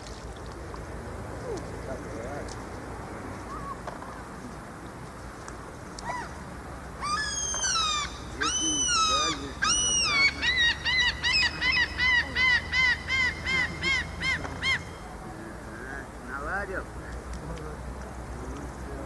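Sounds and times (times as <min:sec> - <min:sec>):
gull long call: 0:03.5 - 0:04.5, 0:06.0 - 0:06.4, 0:07.0 - 0:15.2.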